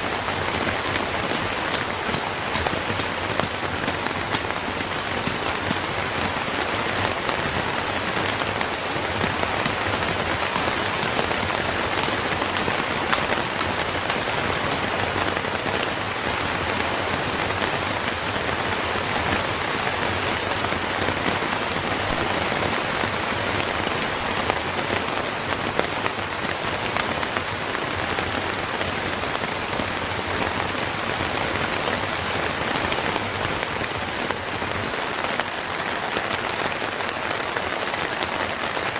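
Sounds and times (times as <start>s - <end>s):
steady rain falling: 0.0s - 38.9s
sharp ticks: 0.9s - 6.0s, 9.2s - 14.3s, 27.0s - 27.2s.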